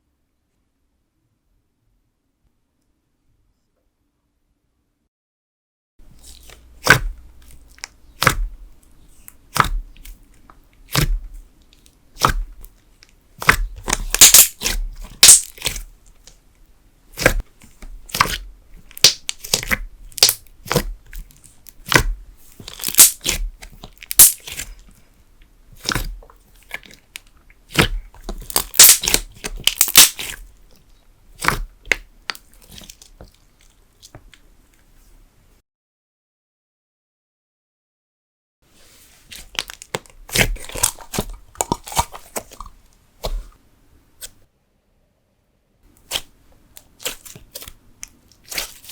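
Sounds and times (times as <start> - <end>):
slime cracking snaps: 19.0 - 20.8, 27.7 - 30.4.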